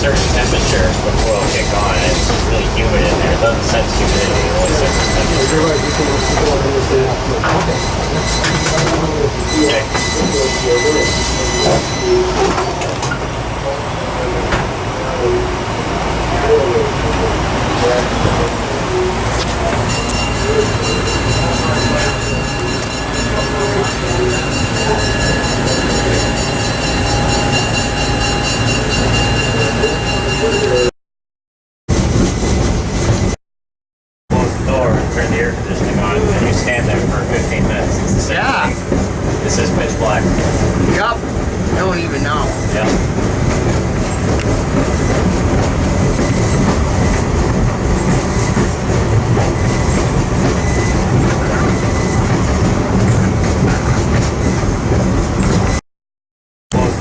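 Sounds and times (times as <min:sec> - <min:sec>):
train rumbling on rails: 0:00.0 - 0:30.9, 0:31.9 - 0:33.4, 0:34.3 - 0:55.8, 0:56.7 - 0:57.0
steady high tones: 0:00.2 - 0:30.9.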